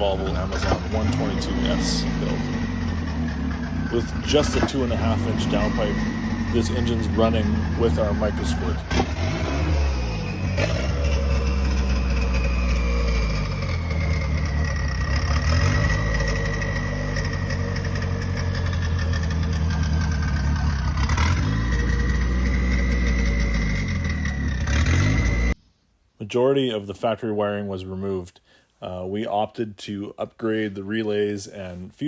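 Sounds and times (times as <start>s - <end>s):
car engine idling: 0.0s - 25.6s
high whine: 0.0s - 25.6s.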